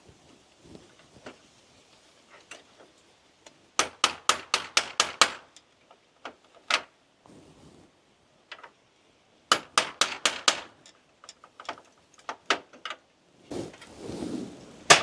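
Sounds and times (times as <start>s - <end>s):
hard parts tapping together: 3.8s - 6.9s, 9.5s - 13.0s
soft rustling: 7.2s - 8.0s, 13.4s - 14.9s.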